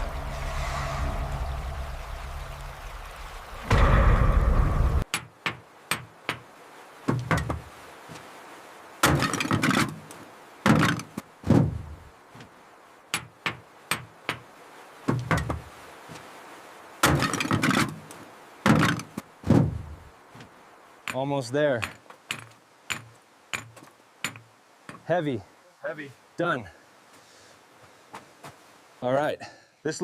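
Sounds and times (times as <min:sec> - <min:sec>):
stone knocking against stone: 0:21.8 - 0:25.0.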